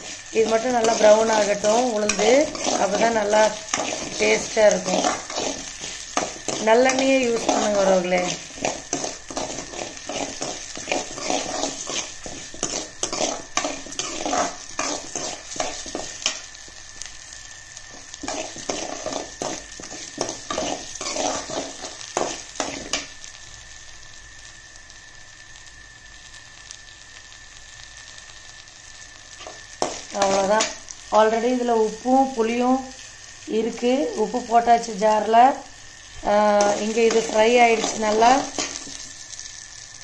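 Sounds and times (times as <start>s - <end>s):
spoon scraping a metal pan: 0.0s - 16.4s, 18.2s - 23.0s, 36.6s - 39.0s
food sizzling in oil: 0.0s - 40.0s.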